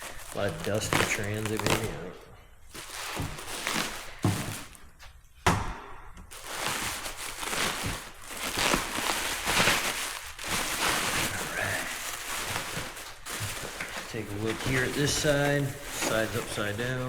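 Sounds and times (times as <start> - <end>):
bubble wrap and paper rustling: 0.0 - 5.3, 6.2 - 17.0.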